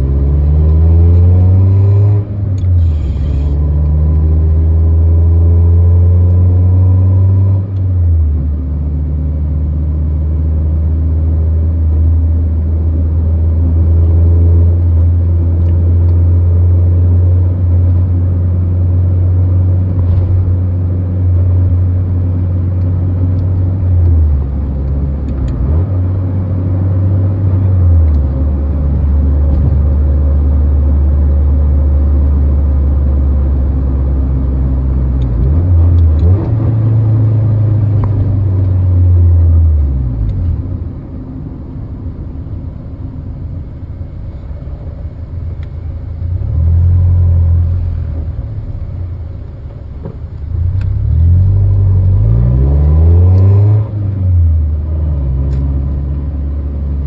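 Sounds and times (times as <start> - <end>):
tyre and road noise: 0.0 - 8.8, 19.7 - 57.0
car engine droning in cabin: 0.0 - 57.0.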